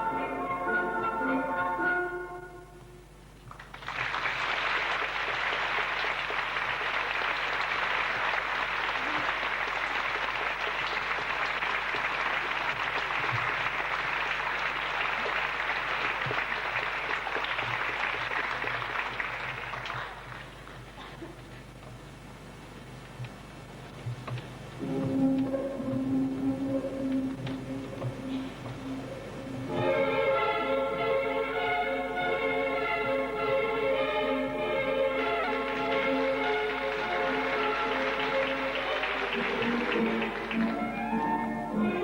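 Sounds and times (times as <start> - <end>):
audience applauding: 3.5 - 21.0, 35.3 - 41.2.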